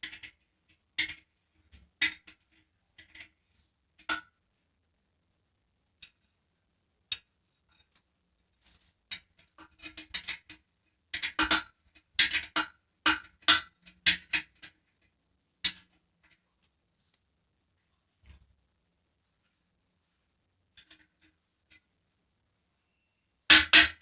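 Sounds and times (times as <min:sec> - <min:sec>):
metallic clinks and taps: 0:23.5 - 0:24.0.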